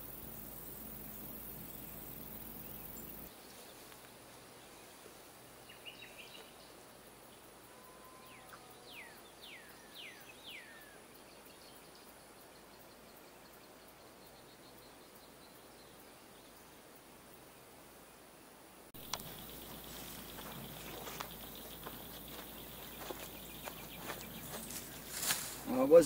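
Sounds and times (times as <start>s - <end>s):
high insect buzz: 0.0s - 4.1s, 19.0s - 26.0s
birds chirping: 0.0s - 16.7s, 19.0s - 26.0s
background hiss: 0.0s - 26.0s.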